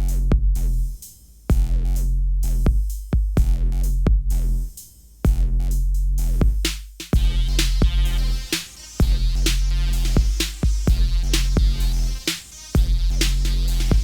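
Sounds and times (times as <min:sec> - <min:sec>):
electronic music with drum-machine beat: 0:06.5 - 0:14.0.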